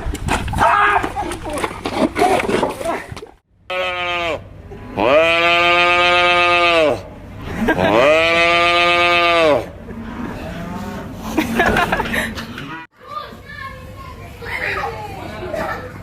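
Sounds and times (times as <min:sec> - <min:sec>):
cattle mooing: 0:05.0 - 0:07.0, 0:07.7 - 0:11.1.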